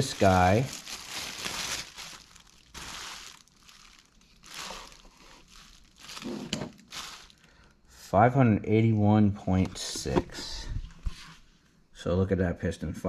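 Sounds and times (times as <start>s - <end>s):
packaging crinkling: 0.0s - 7.7s.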